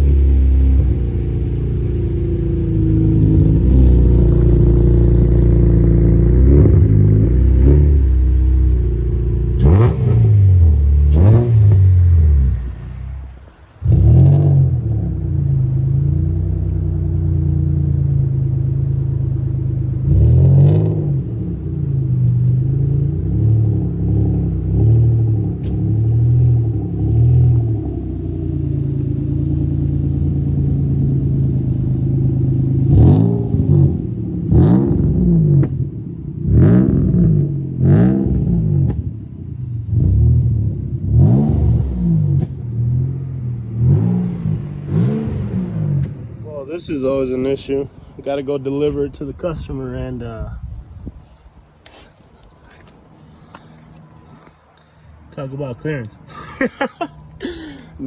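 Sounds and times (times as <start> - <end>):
engine revving blips: 0.0 - 15.2, 24.4 - 47.5
car engine idling: 0.0 - 50.4, 51.8 - 58.0.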